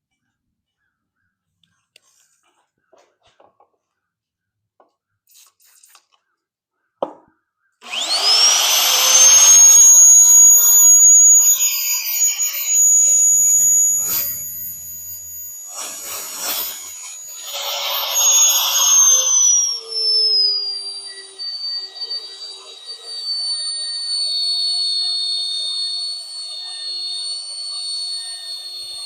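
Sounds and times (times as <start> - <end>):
electric drill drilling steel: 7.8 - 29.0.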